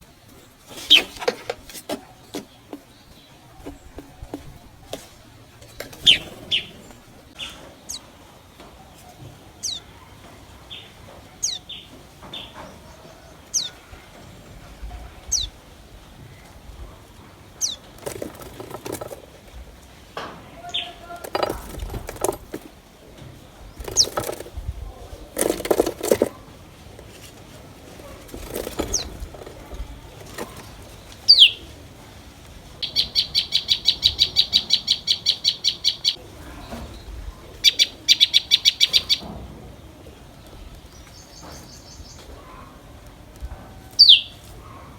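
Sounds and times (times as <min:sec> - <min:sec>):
tailorbirds calling: 0:00.0 - 0:19.8, 0:20.5 - 0:31.9, 0:32.8 - 0:44.9
wings fluttering: 0:00.1 - 0:08.0, 0:17.6 - 0:19.6, 0:21.0 - 0:22.8, 0:23.7 - 0:31.6.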